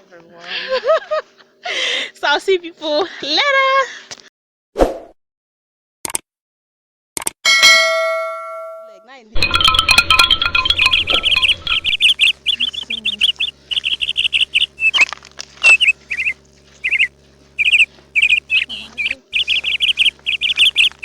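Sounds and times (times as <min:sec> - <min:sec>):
birds chirping: 0:09.4 - 0:21.0.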